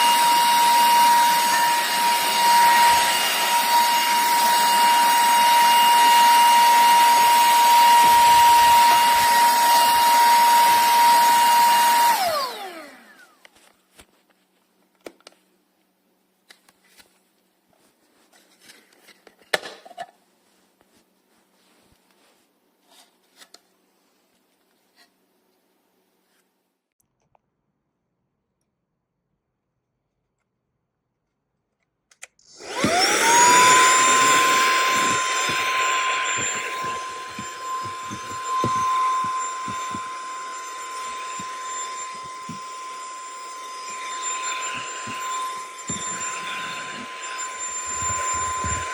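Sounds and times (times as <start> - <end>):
vacuum cleaner motor whine: 0.0 - 13.7, 32.5 - 48.9.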